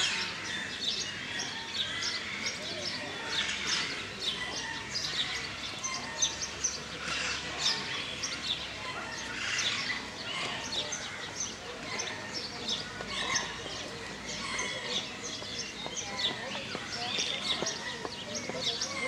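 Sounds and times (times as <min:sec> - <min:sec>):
birds chirping and singing: 0:00.0 - 0:19.0.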